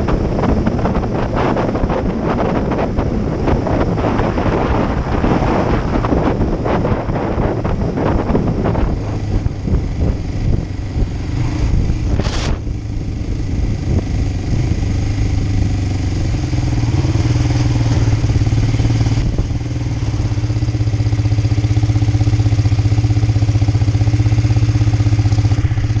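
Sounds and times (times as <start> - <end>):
wind buffeting microphone: 0.0 - 26.0
motorcycle engine idling: 5.8 - 26.0.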